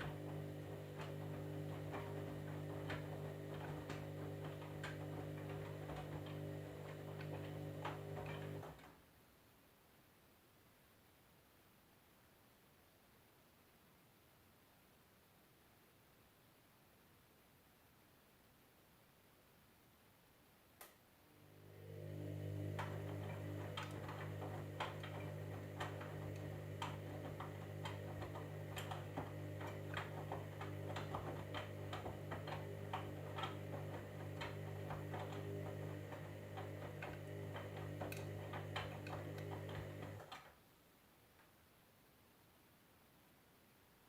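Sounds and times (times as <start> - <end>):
washing machine motor hum: 0.0 - 8.9, 21.3 - 40.5.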